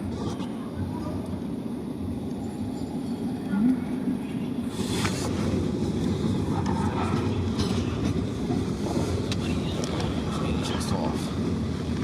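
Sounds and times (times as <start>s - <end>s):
railcars rumbling on track: 0.0s - 12.0s.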